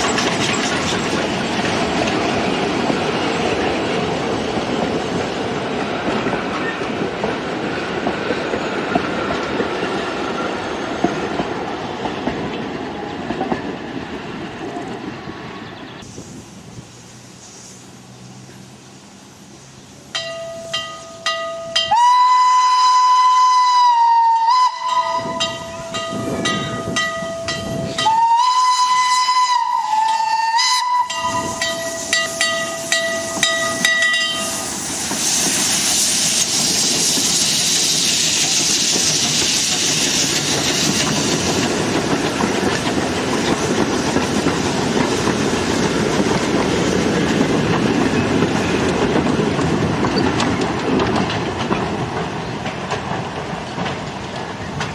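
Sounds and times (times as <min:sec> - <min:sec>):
train wheels clattering on rails: 0:00.0 - 0:16.2, 0:24.5 - 0:54.9
steam hissing: 0:15.3 - 0:21.3, 0:21.9 - 0:54.9
steam locomotive whistle blasts: 0:20.2 - 0:36.6.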